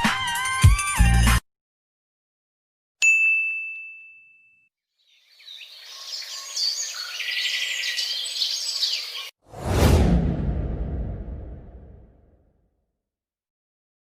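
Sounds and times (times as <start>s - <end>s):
bell ding: 3.0s - 4.7s
birds chirping: 5.0s - 9.3s.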